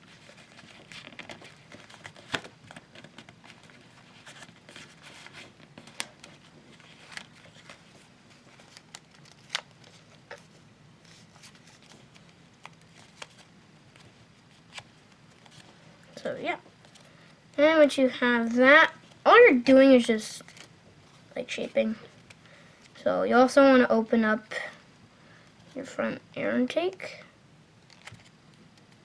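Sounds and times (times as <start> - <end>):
paper being folded and creased: 0.0 - 15.8, 18.4 - 20.7, 27.9 - 29.0.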